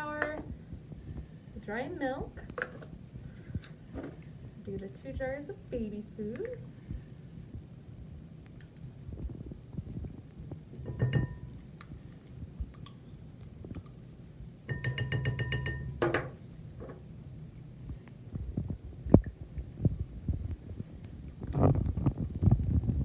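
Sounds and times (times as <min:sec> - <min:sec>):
spoon clinking on glass jar: 0:10.9 - 0:11.6, 0:14.7 - 0:16.2.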